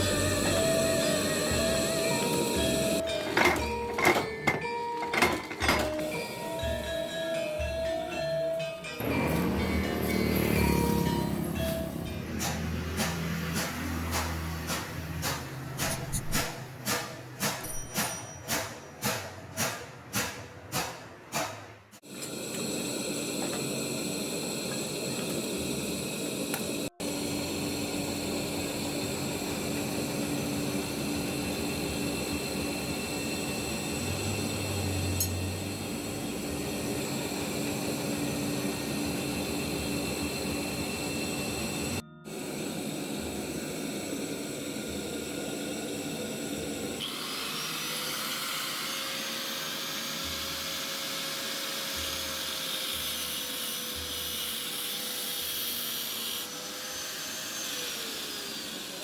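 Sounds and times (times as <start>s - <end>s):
higher-pitched power tool: 0.0s - 3.1s, 9.0s - 14.1s, 22.2s - 59.0s
power tools whining: 0.0s - 8.1s, 44.1s - 59.0s.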